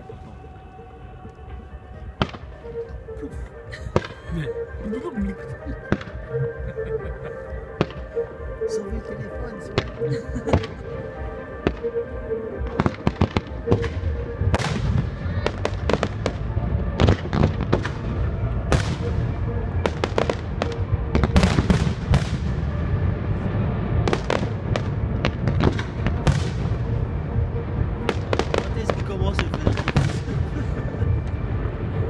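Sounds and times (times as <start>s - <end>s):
low rumble: 0.0s - 4.5s, 8.9s - 32.0s
fireworks bangs and crackles: 7.8s - 8.1s, 9.7s - 10.8s, 12.7s - 32.0s.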